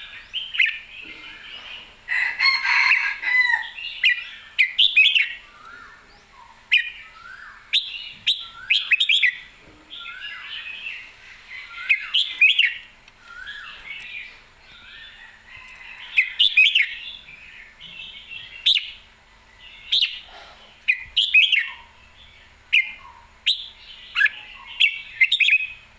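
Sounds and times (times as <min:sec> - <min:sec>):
bird singing warbled phrases: 0:00.0 - 0:02.0, 0:02.8 - 0:25.9
sharp bird clicks: 0:12.0 - 0:14.2.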